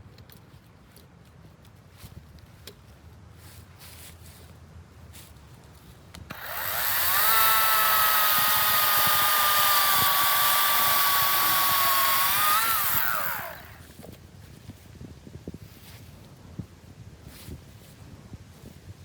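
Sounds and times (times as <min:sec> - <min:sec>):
electric chainsaw motor whine: 0:06.3 - 0:13.9.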